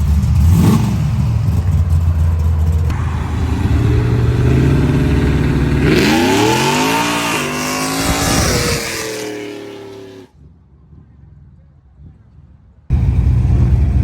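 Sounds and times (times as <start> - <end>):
car engine accelerating: 0.0 - 10.3.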